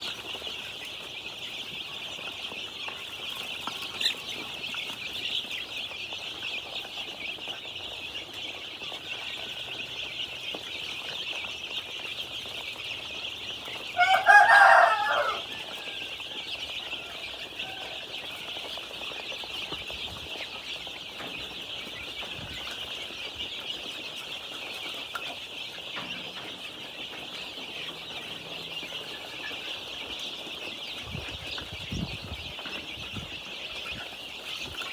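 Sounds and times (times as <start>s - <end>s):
chicks peeping: 0.0s - 34.9s
rooster crowing: 14.0s - 18.8s.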